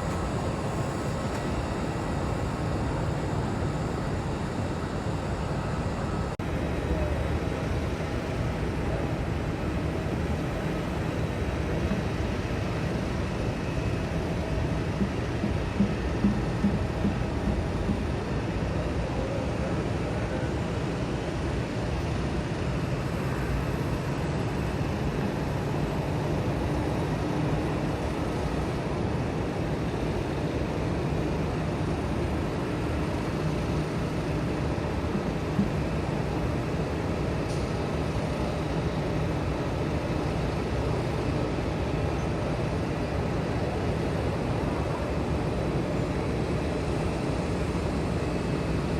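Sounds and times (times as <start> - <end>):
jet engines rumbling: 0.0 - 20.1.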